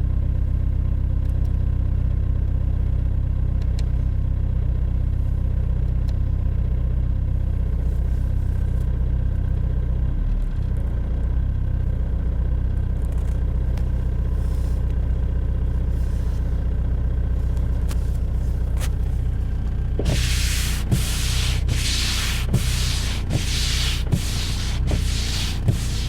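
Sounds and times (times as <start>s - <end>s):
rhythmic rubbing hissing noise: 20.1s - 26.0s.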